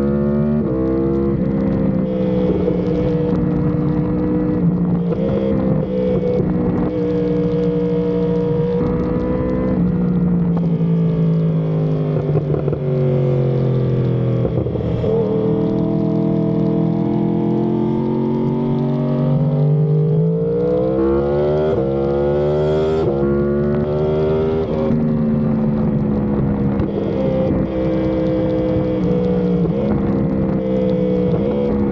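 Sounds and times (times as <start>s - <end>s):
motorcycle engine revving through gears: 0.0s - 31.9s.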